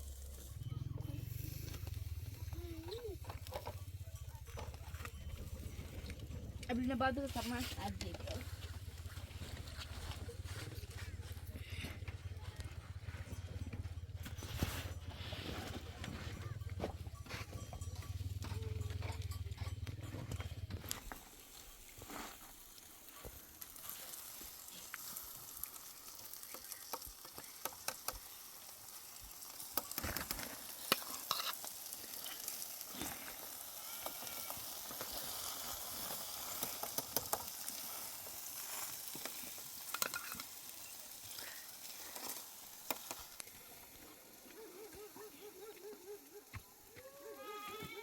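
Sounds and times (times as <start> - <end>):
food sizzling in a pan: 21.1 - 45.0
utensil clicking against pan: 36.6 - 37.5, 39.2 - 40.6.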